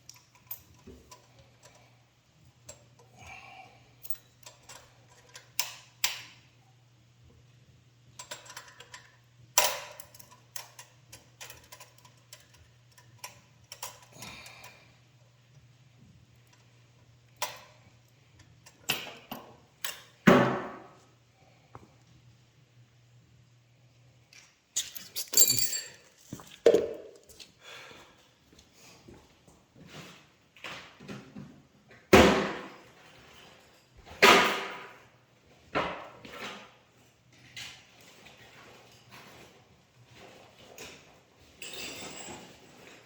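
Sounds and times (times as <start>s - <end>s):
hand tools clinking: 0.0s - 1.9s, 24.8s - 27.4s.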